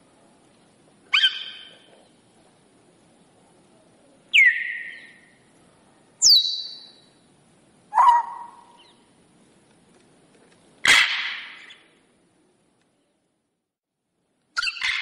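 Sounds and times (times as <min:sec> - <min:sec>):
parrot whistles and calls: 0:01.1 - 0:01.8, 0:04.3 - 0:05.2, 0:06.2 - 0:07.0, 0:14.6 - 0:15.0.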